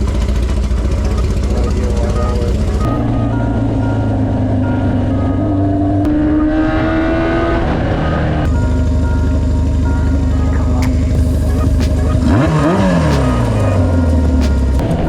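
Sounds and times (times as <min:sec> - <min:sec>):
motorcycle engine running: 0:00.0 - 0:06.4, 0:08.5 - 0:15.0.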